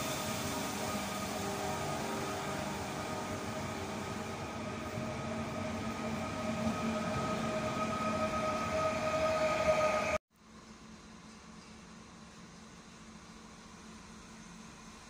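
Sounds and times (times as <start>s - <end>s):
electric train drive whine: 0.0s - 10.2s
rumble of train wheels: 0.0s - 15.0s.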